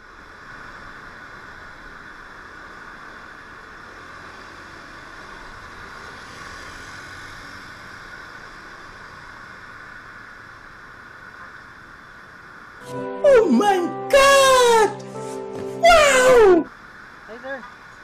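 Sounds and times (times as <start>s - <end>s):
motor scooter riding hum: 0.0s - 12.0s
passing traffic: 0.0s - 18.0s.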